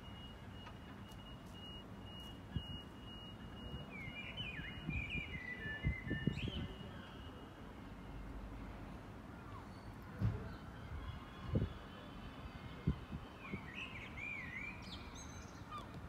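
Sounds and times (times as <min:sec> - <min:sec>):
songbirds chirping and warbling: 0:00.0 - 0:16.0
wind buffeting microphone: 0:04.6 - 0:06.8, 0:10.4 - 0:11.8, 0:12.6 - 0:13.8.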